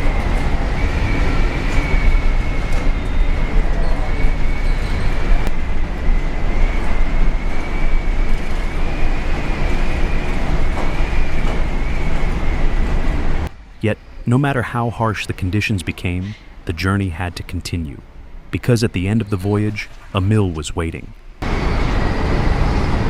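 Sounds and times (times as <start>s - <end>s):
wavering wind whistle: 0.0s - 14.3s
heavy seas rumbling and rushing: 0.0s - 23.0s.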